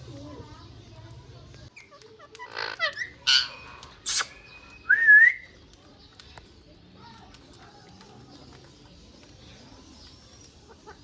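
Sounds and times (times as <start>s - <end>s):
parrot squawks: 2.4s - 4.6s.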